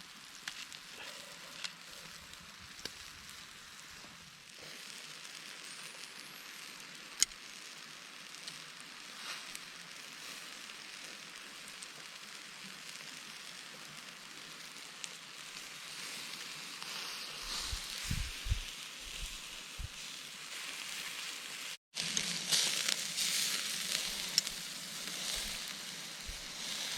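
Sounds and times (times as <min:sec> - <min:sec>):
campfire crackling: 0:00.0 - 0:26.9
food sizzling on a grill: 0:00.0 - 0:26.9
dull low thumps: 0:17.6 - 0:19.9.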